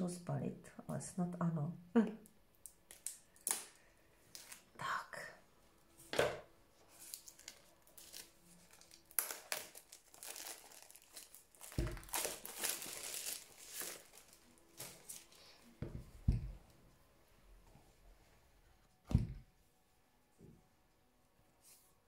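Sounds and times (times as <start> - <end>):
wrapping crackling and tearing: 2.6 - 4.7, 6.9 - 15.5.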